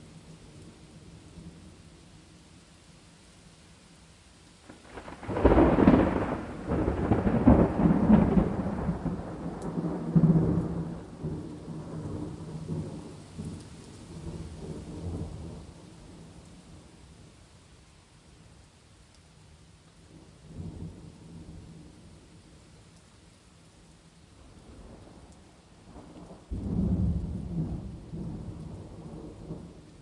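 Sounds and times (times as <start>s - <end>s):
faint rain hiss: 0.0s - 30.0s
thunder rumbling: 4.7s - 16.2s, 25.9s - 30.0s.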